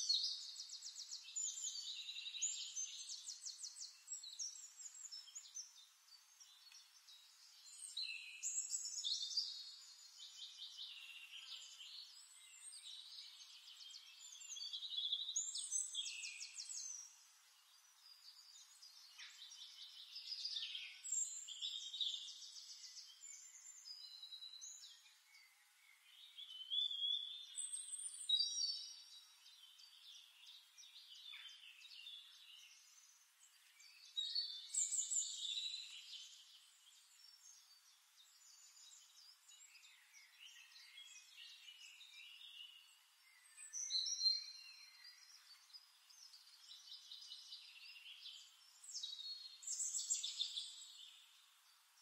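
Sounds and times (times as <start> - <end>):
songbirds chirping and trilling: 0.0 - 52.0.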